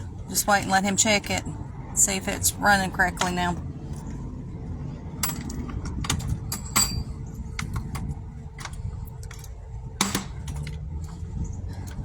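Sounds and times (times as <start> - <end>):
steady low rumble: 0.0 - 12.0
sharp clicks and knocks: 5.2 - 12.0.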